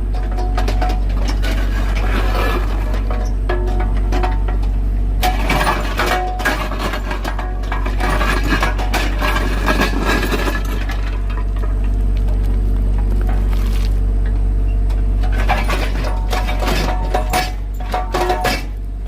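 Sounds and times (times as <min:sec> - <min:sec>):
excavator engine running: 0:00.0 - 0:19.0
rock cracking and clattering: 0:05.2 - 0:14.3.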